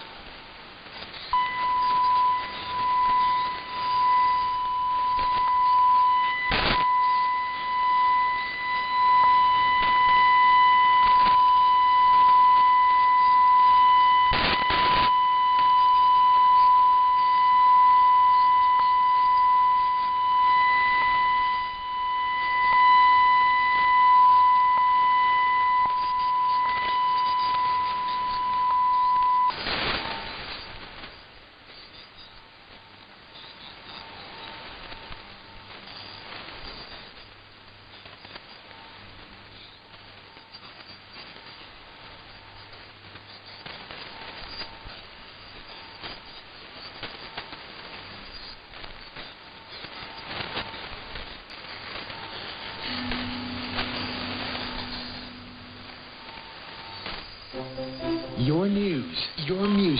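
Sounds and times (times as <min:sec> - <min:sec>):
radio hiss: 0:00.0 - 0:17.2, 0:17.8 - 0:32.2, 0:33.1 - 0:59.9
test tone over radio: 0:01.3 - 0:30.7, 0:51.7 - 0:59.9
static crashes: 0:06.4 - 0:06.8, 0:14.3 - 0:15.1, 0:29.5 - 0:31.2, 0:45.5 - 0:59.9.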